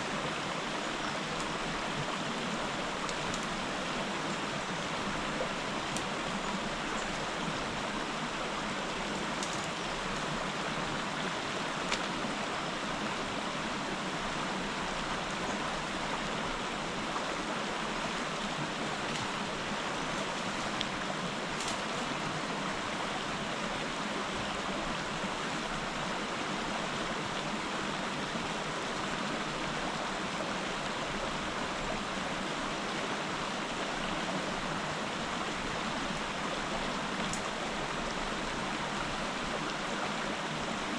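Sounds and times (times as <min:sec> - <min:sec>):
river water rushing: 0:00.0 - 0:40.9
faint ticks: 0:09.1 - 0:10.3, 0:37.2 - 0:37.5.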